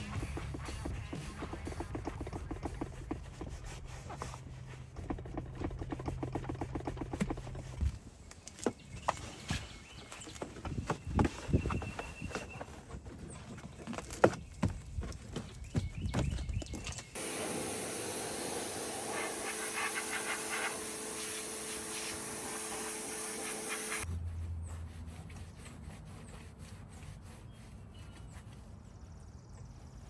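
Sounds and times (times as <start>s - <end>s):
hissing spray: 17.2s - 24.0s
motor humming: 17.2s - 24.0s.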